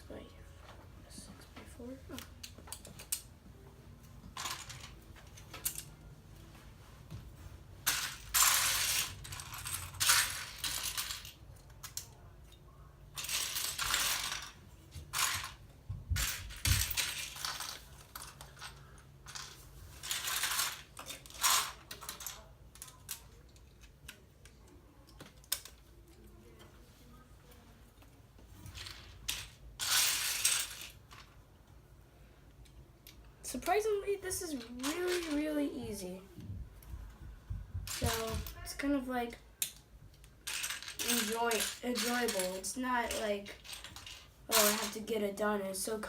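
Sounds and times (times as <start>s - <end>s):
plastic pieces clattering: 7.8s - 12.1s, 13.2s - 24.2s, 28.7s - 31.3s, 34.5s - 35.5s, 40.4s - 45.0s.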